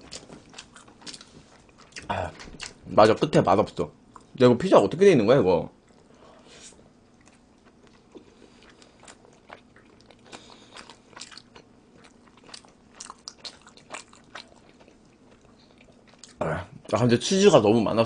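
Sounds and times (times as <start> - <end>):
person chewing: 0.0 - 2.8, 5.8 - 16.4.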